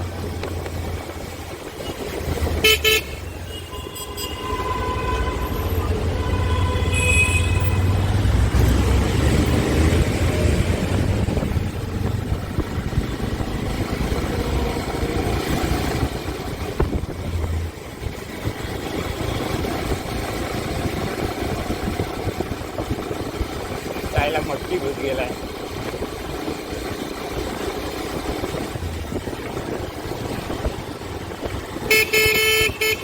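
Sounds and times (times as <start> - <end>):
motorcycle engine rumble: 0.0 - 33.0
wind rushing over microphone: 7.6 - 33.0.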